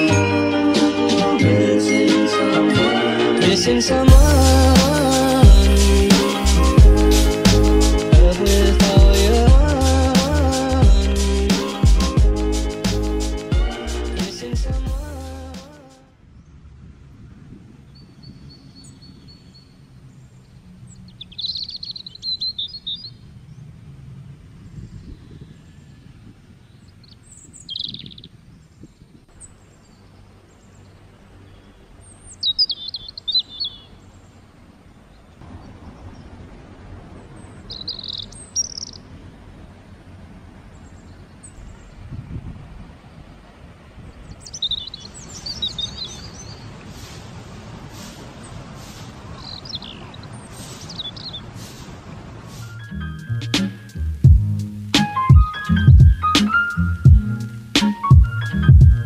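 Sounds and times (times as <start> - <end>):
songbirds chirping: 0.0 - 59.0
low outdoor background noise: 15.0 - 59.0.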